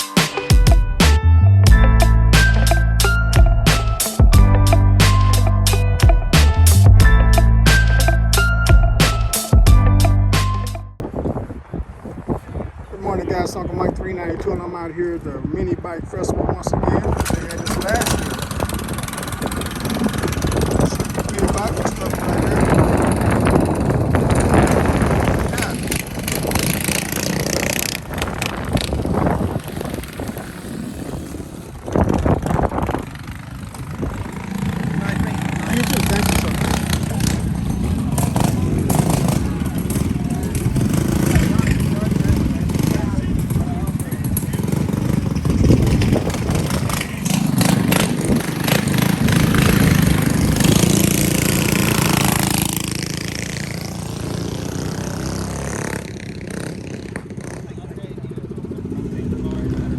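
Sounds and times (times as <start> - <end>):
wind noise on microphone: 0.0 - 57.6
mini bike engines running: 16.9 - 59.9.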